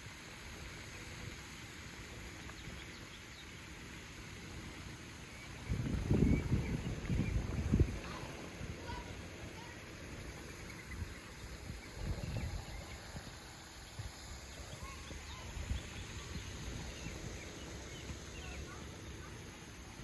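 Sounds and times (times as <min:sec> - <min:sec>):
faint bird chirps: 0:05.2 - 0:20.0
wind buffeting microphone: 0:05.5 - 0:18.6.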